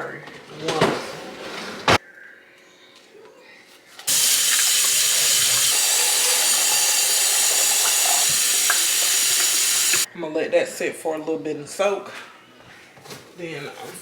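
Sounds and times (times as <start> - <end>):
kitchen tap running water: 4.1 - 10.1.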